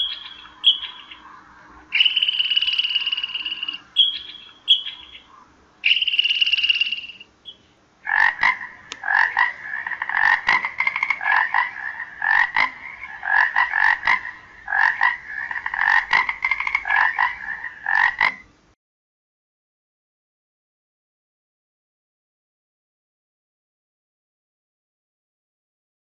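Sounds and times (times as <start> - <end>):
frog croaking: 0.0 - 18.6.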